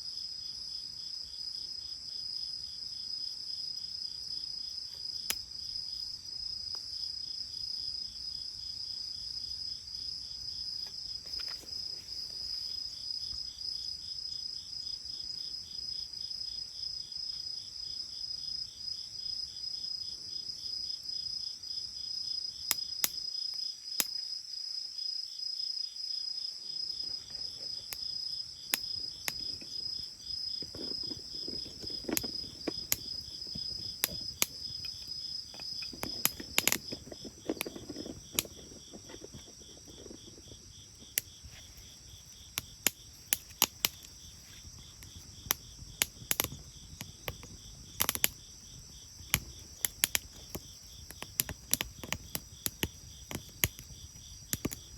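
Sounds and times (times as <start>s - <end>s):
crickets chirping: 0.0s - 54.9s
bonfire popping and crackling: 28.6s - 54.9s.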